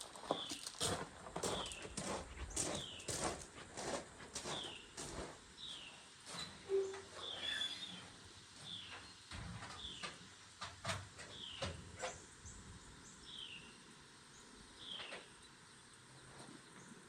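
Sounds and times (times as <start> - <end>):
small bird chirping: 5.6 - 9.2.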